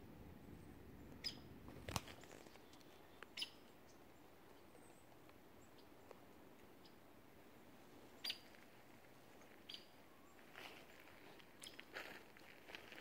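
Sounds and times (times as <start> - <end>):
high bird chirps: 3.3 - 3.6.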